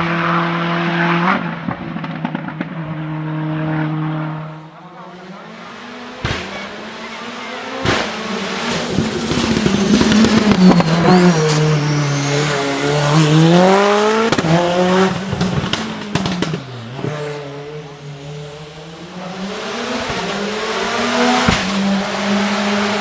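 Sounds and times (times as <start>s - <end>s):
turbocharged engine accelerating: 0.0s - 23.0s.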